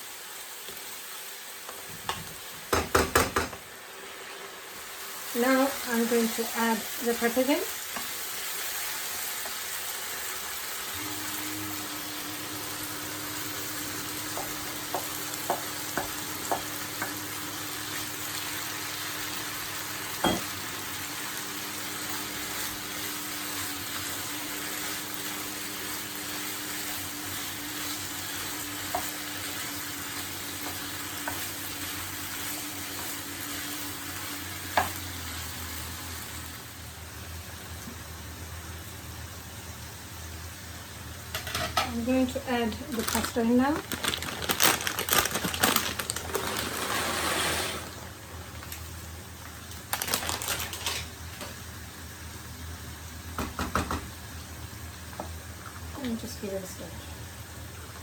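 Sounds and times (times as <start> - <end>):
peppers sizzling in a pan: 0.0 - 58.0
utensil knocking against pan: 2.1 - 3.6.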